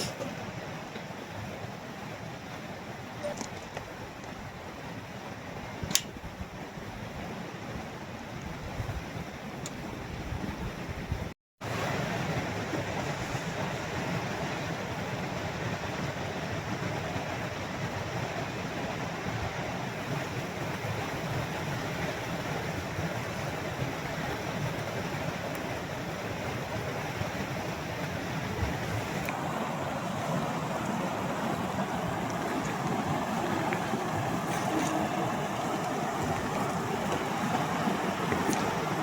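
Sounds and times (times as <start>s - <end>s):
river rushing over rocks: 11.6s - 39.0s.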